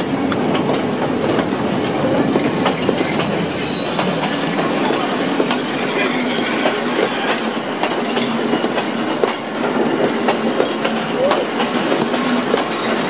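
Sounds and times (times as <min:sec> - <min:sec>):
train running gear rumble: 0:00.0 - 0:13.0
wheels clicking over rail joints: 0:00.0 - 0:13.0
wheel squeals: 0:03.4 - 0:04.1.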